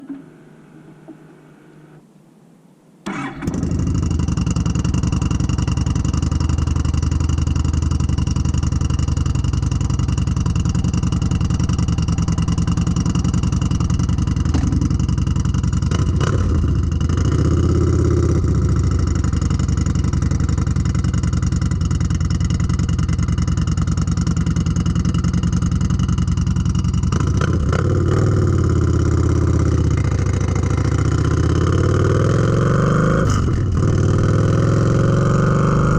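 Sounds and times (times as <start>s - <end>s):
motorcycle exhaust note: 3.1s - 35.9s.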